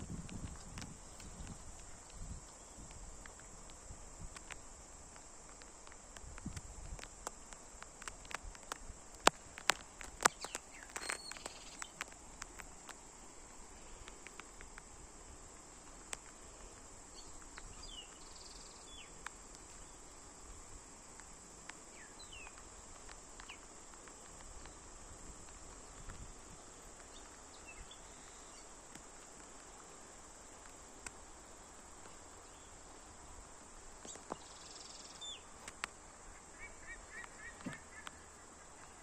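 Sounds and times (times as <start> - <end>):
high-pitched insect drone: 8.2 - 12.7
bird chirps: 10.3 - 12.0.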